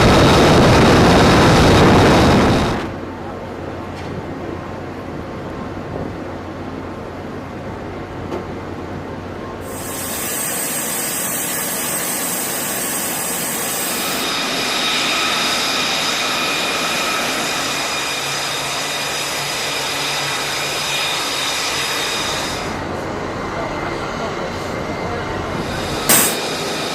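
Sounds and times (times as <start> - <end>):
high-pitched whining tones: 9.6 - 14.8
machinery noise: 9.6 - 26.9.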